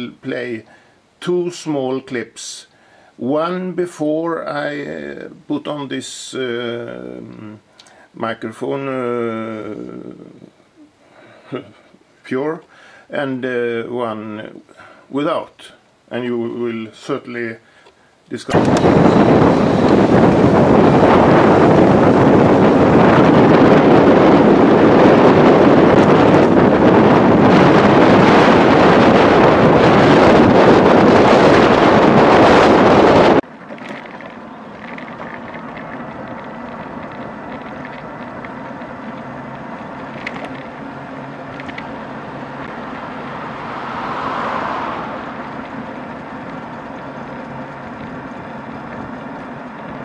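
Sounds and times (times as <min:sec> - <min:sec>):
steady low hum: 0:06.2 - 0:33.4, 0:34.4 - 0:50.0
wind buffeting microphone: 0:18.5 - 0:50.0.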